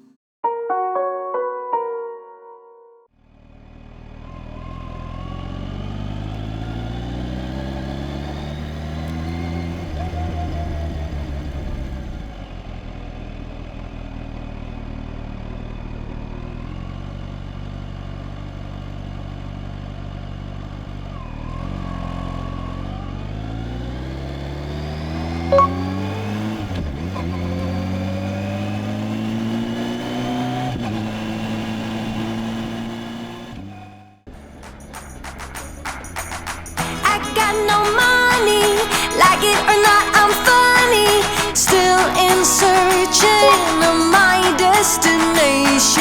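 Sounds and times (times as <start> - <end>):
motorcycle engine shifting gears: 3.5 - 37.0
short beep: 25.5 - 25.9, 43.4 - 43.8.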